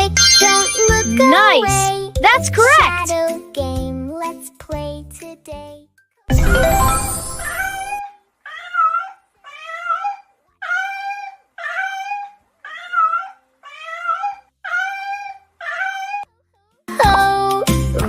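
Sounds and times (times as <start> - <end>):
mewing animal calls: 8.5 - 16.3.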